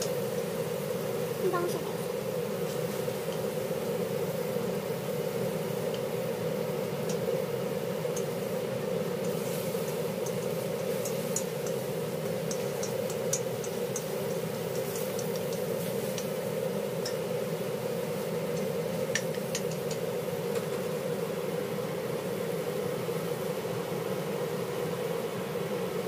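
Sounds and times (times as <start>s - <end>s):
meat frying in oil: 0.0s - 26.0s
steady hum: 0.0s - 26.0s
chopsticks stirring: 9.2s - 17.2s, 18.2s - 20.1s.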